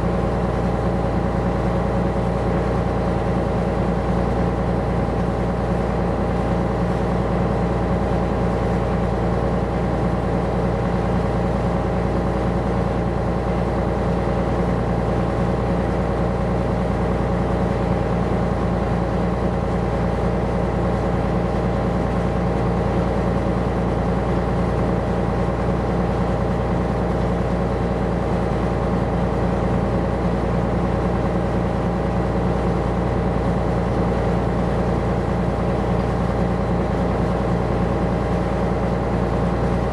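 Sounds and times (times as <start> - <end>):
ship diesel engine humming: 38.4 - 39.9.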